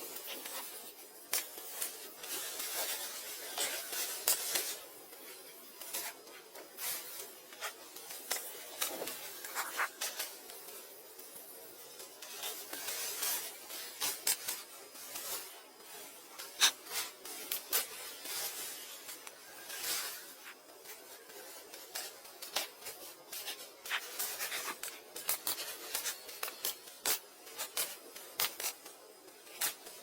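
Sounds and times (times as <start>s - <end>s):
rubbing and scraping: 8.7s - 10.1s.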